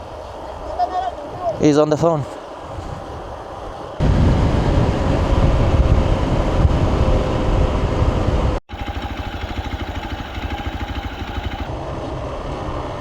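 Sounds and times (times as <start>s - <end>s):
wind noise on microphone: 0.0s - 13.0s
motorcycle engine running: 4.5s - 13.0s.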